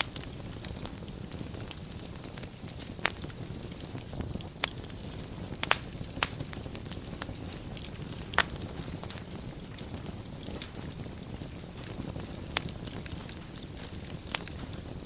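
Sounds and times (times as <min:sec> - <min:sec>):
fire burning in a fireplace: 0:00.0 - 0:15.0
fire popping sharply: 0:00.0 - 0:15.0.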